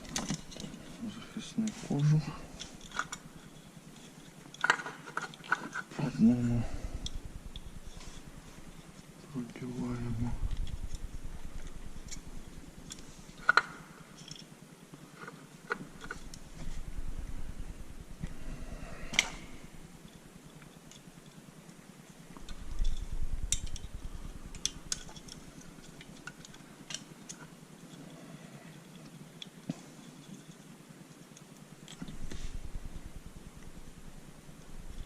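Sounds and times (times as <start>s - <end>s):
low rustle: 5.5s - 14.3s, 15.9s - 30.8s, 31.9s - 35.0s.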